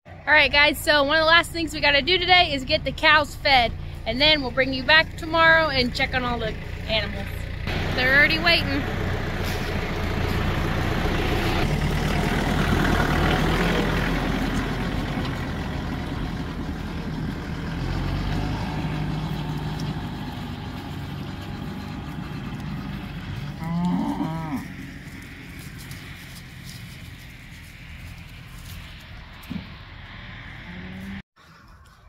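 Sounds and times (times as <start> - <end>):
vehicle engine running: 0.1 - 31.2
cattle mooing: 23.4 - 26.3.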